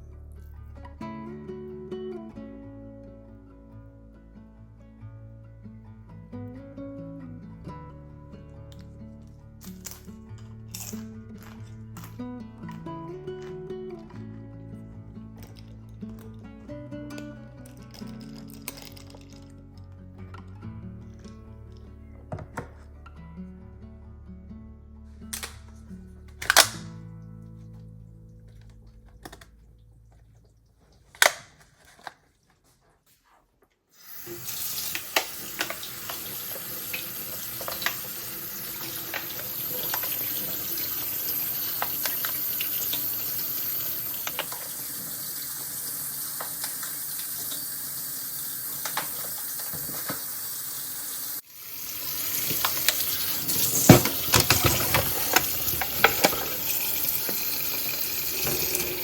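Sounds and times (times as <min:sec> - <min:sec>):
faint background music: 0:00.0 - 0:33.6
tap water running into sink: 0:34.0 - 0:59.0.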